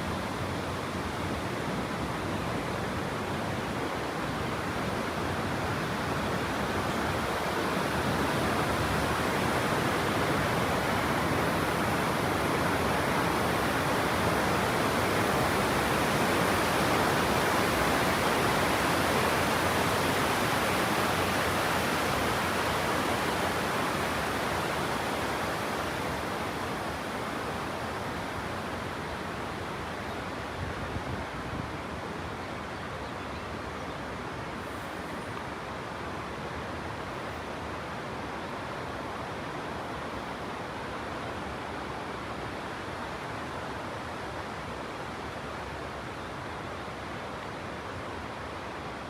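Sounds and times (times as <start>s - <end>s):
waterfall rushing: 0.0s - 32.8s.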